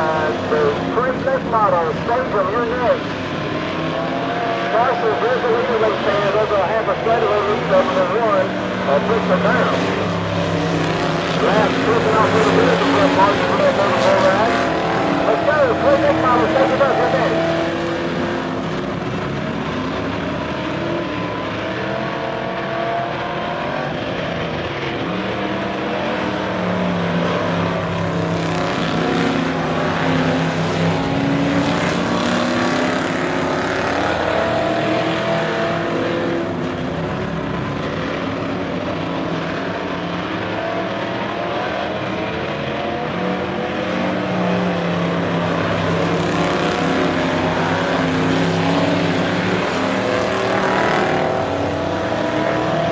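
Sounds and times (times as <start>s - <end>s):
race car engines: 0.0s - 52.9s.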